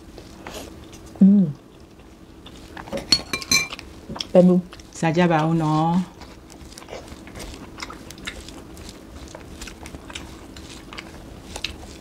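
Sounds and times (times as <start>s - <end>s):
chewing and crunching food: 0.0s - 12.0s.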